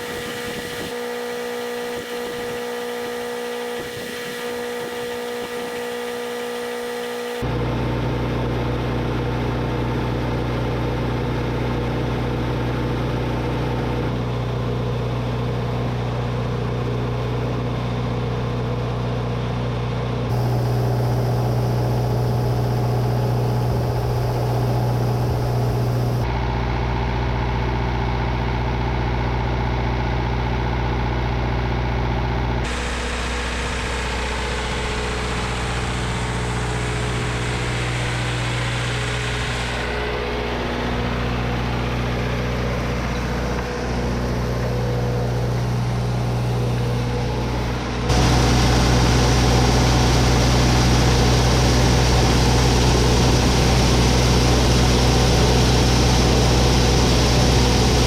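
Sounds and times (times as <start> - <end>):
diesel engine running steadily: 0.0 - 58.0.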